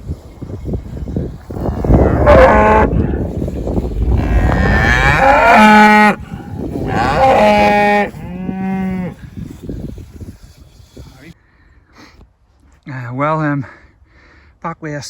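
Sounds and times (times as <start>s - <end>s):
cattle mooing: 1.6s - 3.2s, 4.0s - 6.2s, 6.8s - 9.2s.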